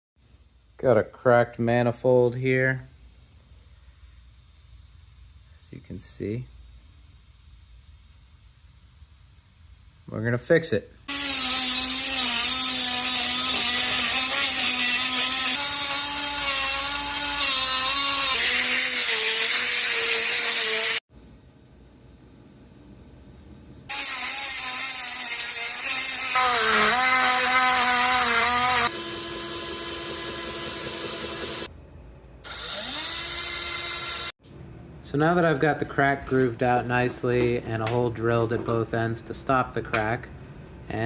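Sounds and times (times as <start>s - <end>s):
power tool grinding metal: 11.1s - 21.0s, 23.9s - 31.7s, 32.5s - 34.3s.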